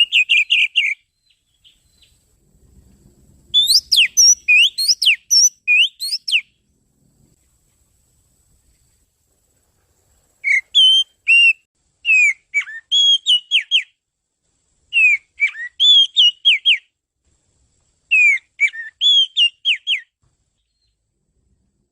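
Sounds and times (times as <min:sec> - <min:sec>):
magpie-robin whistled song: 0:00.0 - 0:02.2, 0:03.5 - 0:06.6, 0:10.4 - 0:14.0, 0:14.9 - 0:16.9, 0:18.1 - 0:21.0.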